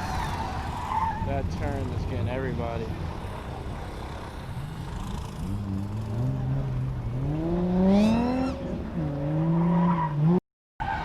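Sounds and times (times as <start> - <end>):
car engine revving: 4.0 - 10.4.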